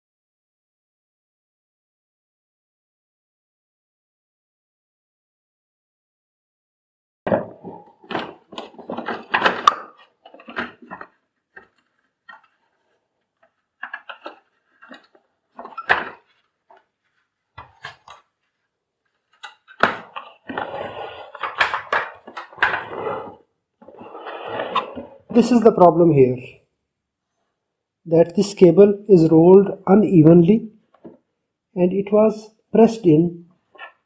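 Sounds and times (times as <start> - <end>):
plastic parts clicking and clattering: 7.3 - 24.0.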